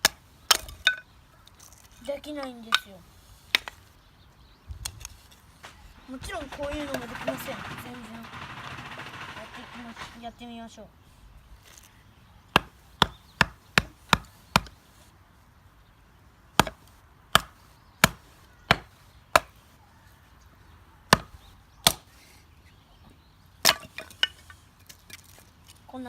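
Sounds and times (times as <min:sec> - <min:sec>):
blade chopping into wood: 0:12.6 - 0:14.8, 0:16.6 - 0:19.6, 0:21.1 - 0:22.2.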